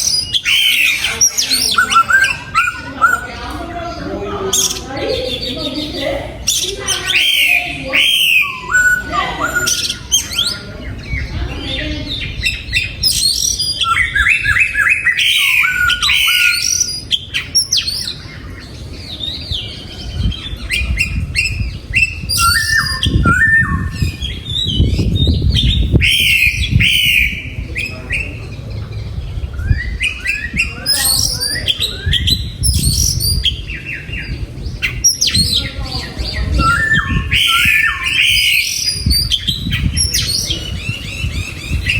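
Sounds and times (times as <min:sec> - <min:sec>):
bird singing whistled phrases: 0:00.0 - 0:03.3, 0:06.5 - 0:10.6, 0:12.3 - 0:18.2, 0:19.2 - 0:28.3, 0:36.2 - 0:41.9
low rumbling noise: 0:18.1 - 0:38.1.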